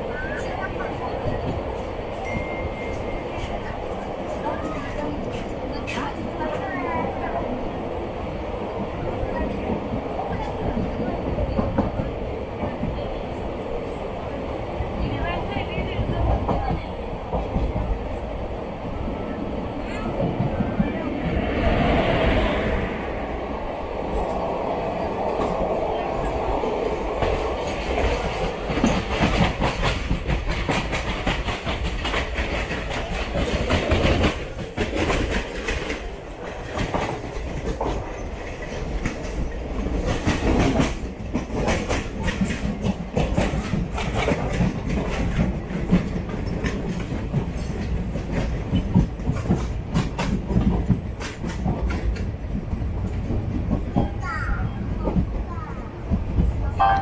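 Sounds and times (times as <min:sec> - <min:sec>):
train rumble and rush: 0:00.0 - 0:57.0
wheels clacking over rail joints: 0:24.2 - 0:57.0.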